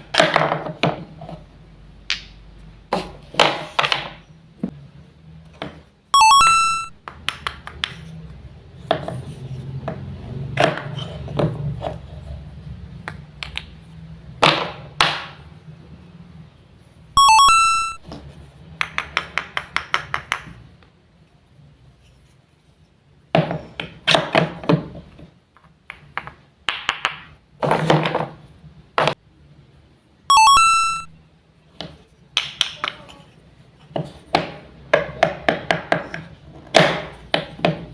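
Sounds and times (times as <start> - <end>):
bright chime: 6.2 - 6.9, 17.2 - 18.0, 30.3 - 31.1.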